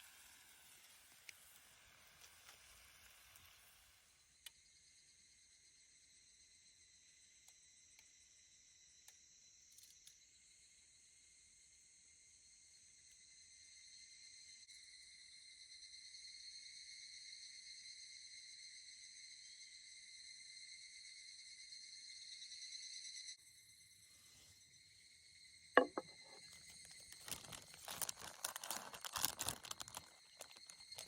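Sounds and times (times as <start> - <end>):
night insects trilling: 4.1 - 25.7, 26.4 - 31.0
clattering and rustling: 25.8 - 31.0.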